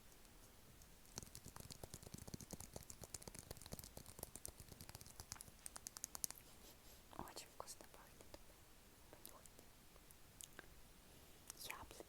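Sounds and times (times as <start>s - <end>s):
wet mouth clicks and smacks: 0.8s - 6.5s, 10.4s - 10.7s.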